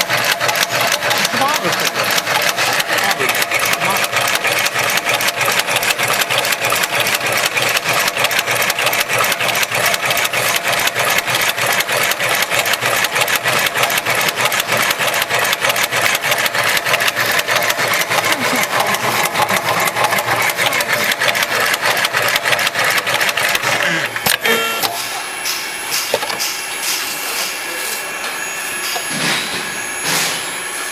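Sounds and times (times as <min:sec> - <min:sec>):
sewing machine needle clatter: 0:00.0 - 0:23.7.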